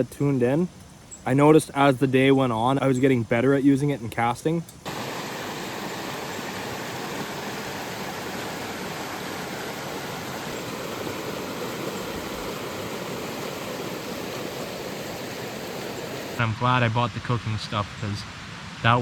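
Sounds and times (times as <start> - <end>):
creek water rushing: 4.9 - 19.0.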